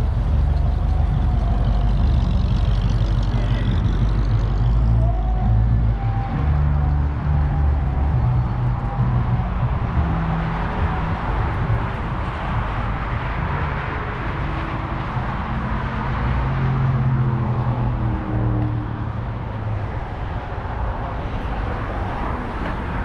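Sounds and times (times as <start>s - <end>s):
car engine running: 0.0s - 17.7s
outdoor background noise: 0.0s - 23.0s.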